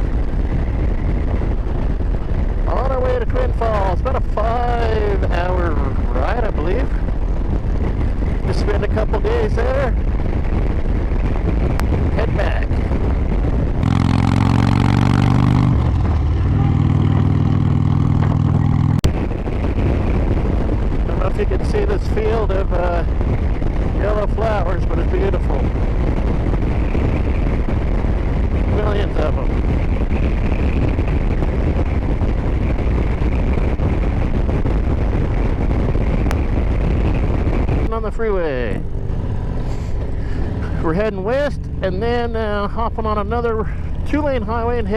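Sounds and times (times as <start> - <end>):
motorcycle engine droning: 0.0 - 44.9
wind rushing over microphone: 0.0 - 44.9
motorcycle engine thrumming: 10.0 - 21.5.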